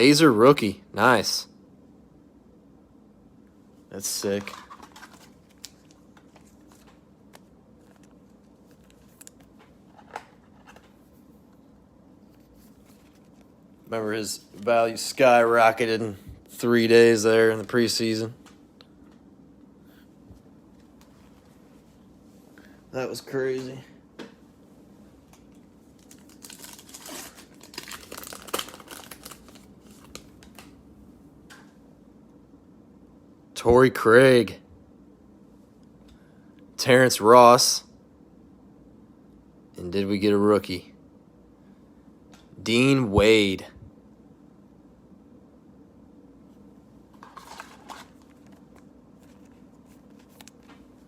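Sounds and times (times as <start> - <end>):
trading cards flipped through: 4.2 - 11.0, 12.3 - 13.5, 25.4 - 30.8, 47.1 - 51.0
cellophane tearing and crinkling: 26.0 - 30.6.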